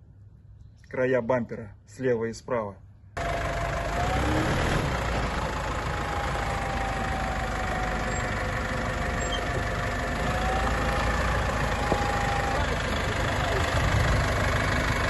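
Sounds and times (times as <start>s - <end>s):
vehicle engine running: 3.2s - 15.0s.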